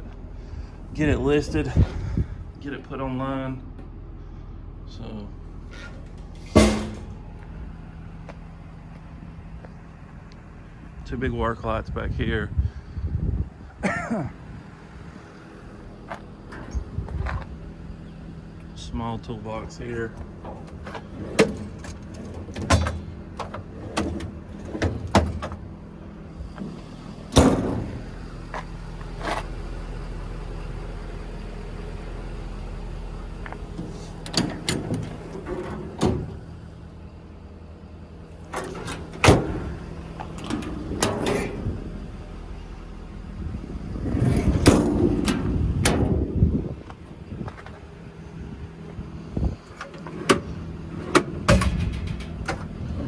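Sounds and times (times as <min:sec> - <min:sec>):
steady low hum: 0:00.0 - 0:53.0
rattling and clatter: 0:05.7 - 0:07.4, 0:20.0 - 0:25.7, 0:38.3 - 0:42.7, 0:43.4 - 0:46.2, 0:49.5 - 0:53.0
toolbox doors and latches clunking: 0:05.8 - 0:07.2, 0:20.1 - 0:25.7, 0:26.6 - 0:28.1, 0:33.4 - 0:36.6, 0:38.4 - 0:42.0, 0:44.0 - 0:46.3, 0:49.6 - 0:53.0.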